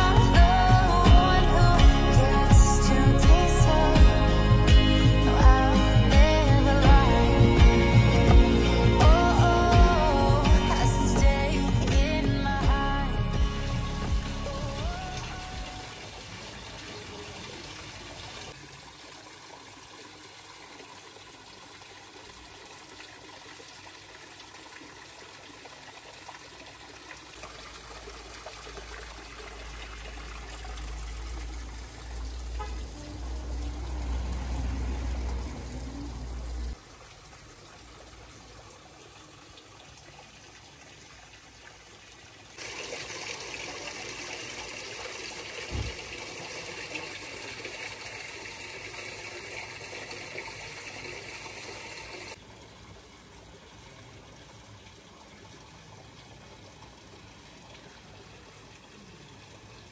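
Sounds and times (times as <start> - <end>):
water trickling: 13.4 - 59.9.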